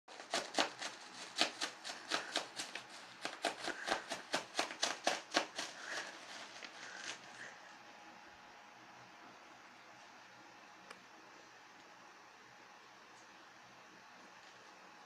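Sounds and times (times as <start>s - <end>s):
bubble wrap popping: 0.1s - 7.2s.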